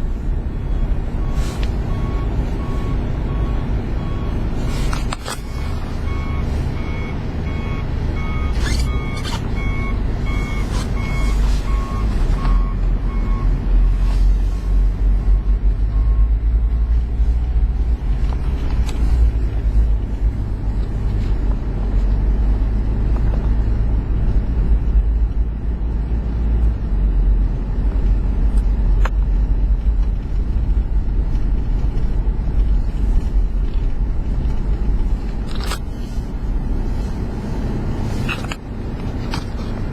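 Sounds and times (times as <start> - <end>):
diesel truck engine running: 0.0 - 39.9
reversing alarm beeping: 0.6 - 4.4, 5.3 - 14.8, 15.9 - 16.4.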